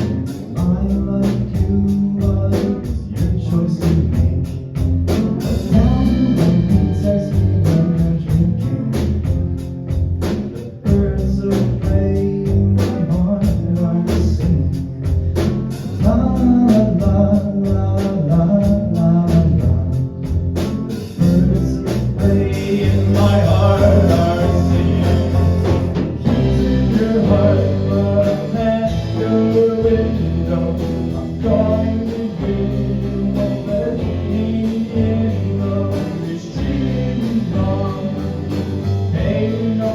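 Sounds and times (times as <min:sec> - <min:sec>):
live band playing: 0:00.0 - 0:39.9
person singing: 0:05.4 - 0:09.1, 0:21.2 - 0:39.9.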